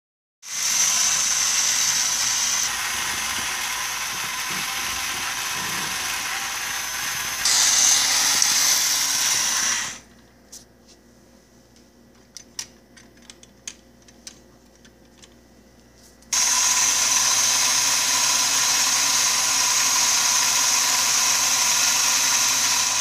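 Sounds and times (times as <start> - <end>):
toy electric motor whirring: 0.5 - 10.0, 16.3 - 23.0.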